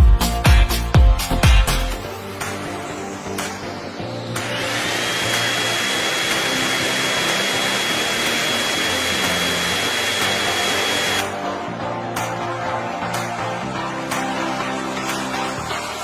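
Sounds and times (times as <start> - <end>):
background music: 0.0 - 16.0
whirring motor with high whine: 4.3 - 11.3.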